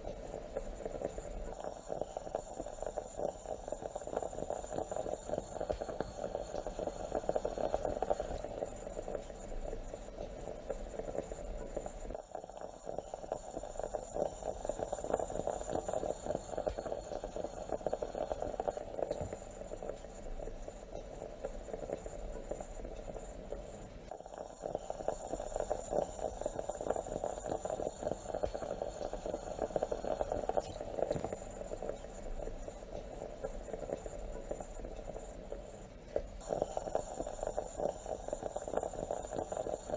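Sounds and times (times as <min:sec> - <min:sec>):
moka pot bubbling and sputtering: 0:00.0 - 0:39.9.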